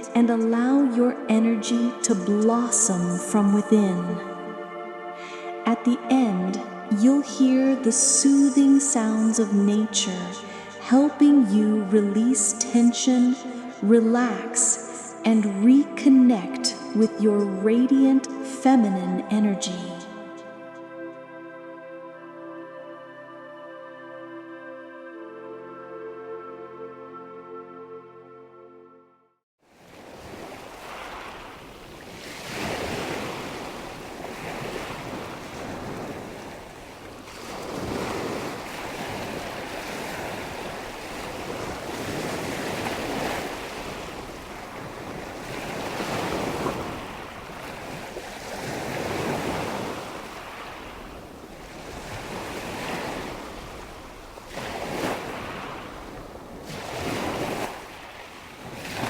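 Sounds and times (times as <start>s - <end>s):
waves washing in: 0.8s - 21.0s, 29.6s - 59.0s
wind: 29.6s - 59.0s.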